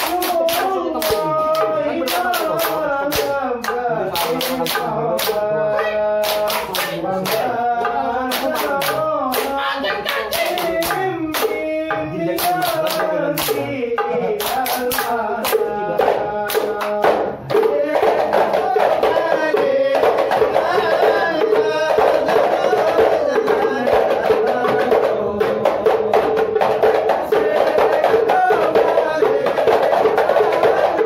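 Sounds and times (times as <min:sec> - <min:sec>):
hand claps: 0:00.0 - 0:11.6, 0:12.3 - 0:17.7
frame drums beaten quickly: 0:00.0 - 0:31.0
group chanting: 0:00.0 - 0:31.0.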